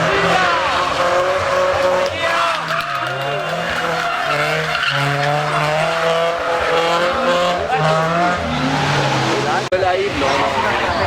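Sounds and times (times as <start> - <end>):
car engine revving: 0.0 - 11.0
tyres squealing: 0.2 - 6.6.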